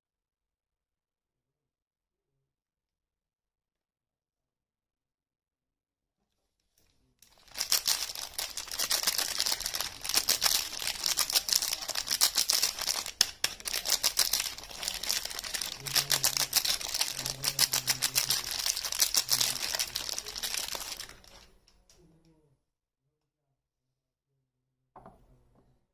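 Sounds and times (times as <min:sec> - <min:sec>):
soap wrapping crinkling: 0:07.2 - 0:22.0.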